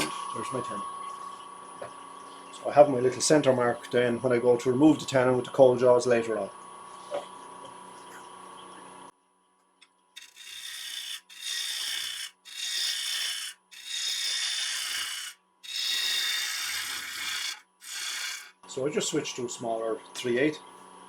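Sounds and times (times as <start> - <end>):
gouge shaving wood on lathe: 10.2 - 18.6.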